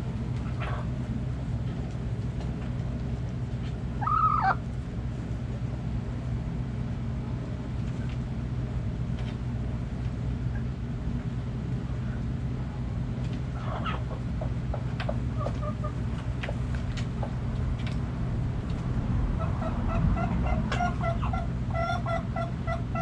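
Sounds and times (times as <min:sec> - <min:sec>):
steady low hum: 0:00.0 - 0:23.0
chicken calling: 0:04.0 - 0:04.6, 0:13.5 - 0:16.0, 0:19.4 - 0:23.0.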